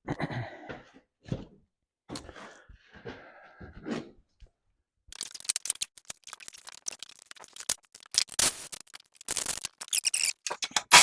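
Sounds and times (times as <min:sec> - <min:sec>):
parts clicking and rattling: 0:05.1 - 0:11.0
parts scraping: 0:05.2 - 0:11.0.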